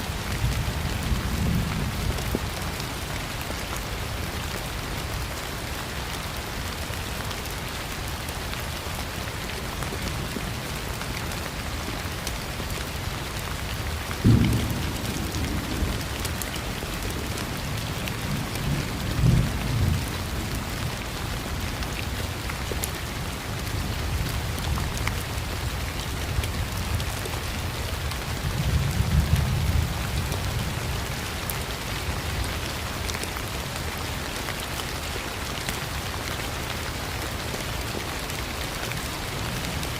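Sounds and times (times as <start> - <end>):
steady rain: 0.0 - 39.9
thunder rumbling: 14.2 - 20.2.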